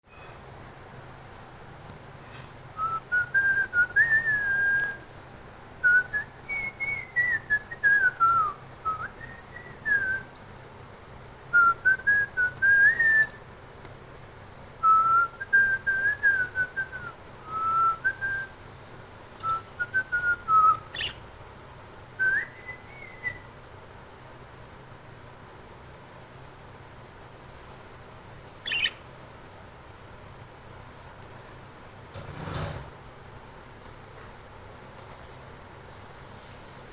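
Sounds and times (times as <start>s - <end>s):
pet bird whistling: 19.4s - 21.3s, 28.6s - 29.1s.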